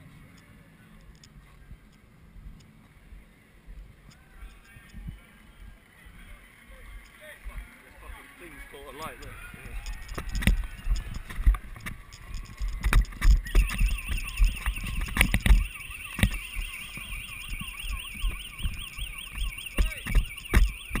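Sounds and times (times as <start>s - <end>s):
warbling electronic alarm: 13.4s - 21.0s.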